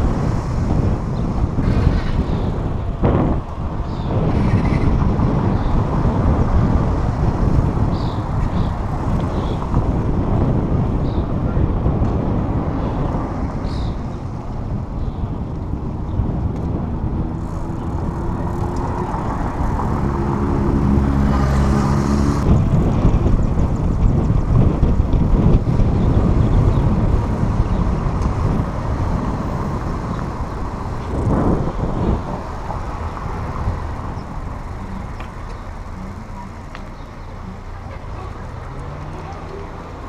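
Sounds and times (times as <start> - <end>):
motor vehicles passing: 0.0 - 40.0
vehicle droning: 0.0 - 40.0.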